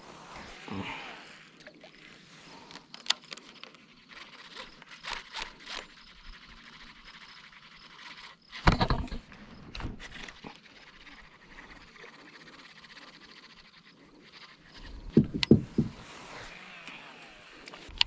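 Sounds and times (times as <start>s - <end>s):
knocks and scrapes on kayak: 8.5s - 10.6s, 14.8s - 16.6s.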